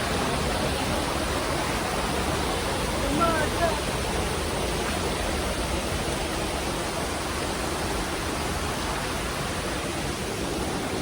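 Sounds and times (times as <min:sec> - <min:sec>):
waterfall and stream rushing: 0:00.0 - 0:11.0.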